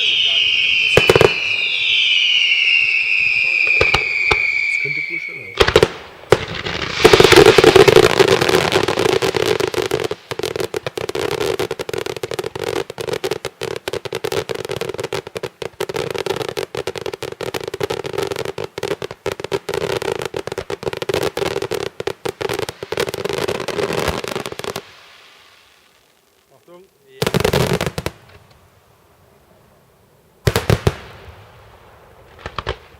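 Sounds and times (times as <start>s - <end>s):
firecracker bangs: 0.0s - 11.0s.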